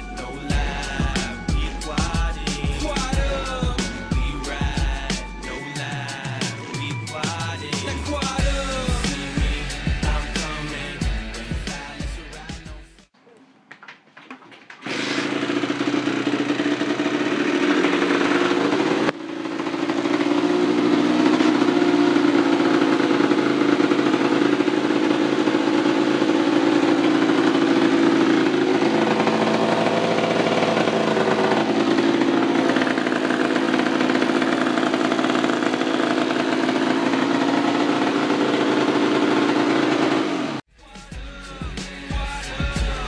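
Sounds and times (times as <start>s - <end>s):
two-stroke engine running: 14.8s - 40.7s.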